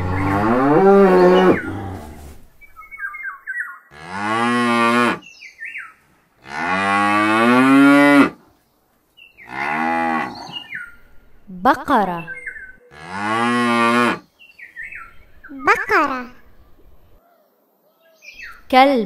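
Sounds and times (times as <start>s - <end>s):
cows mooing: 0.0s - 2.2s, 3.9s - 5.2s, 6.4s - 8.4s, 9.4s - 11.3s, 12.9s - 14.2s.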